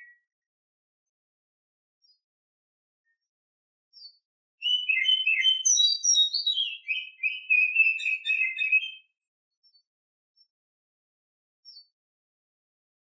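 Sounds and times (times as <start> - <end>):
bird chirp: 0.0 - 0.3, 2.0 - 2.3, 3.0 - 10.6, 11.6 - 12.0
bird singing varied notes: 4.0 - 9.8.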